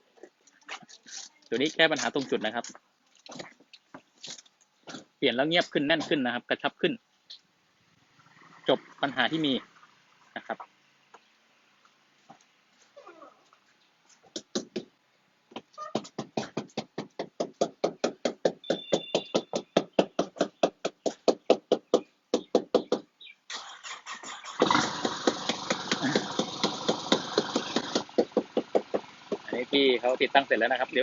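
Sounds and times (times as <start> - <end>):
rapid even knocking: 15.9 - 23.1, 24.9 - 29.7
car engine running: 24.6 - 31.0.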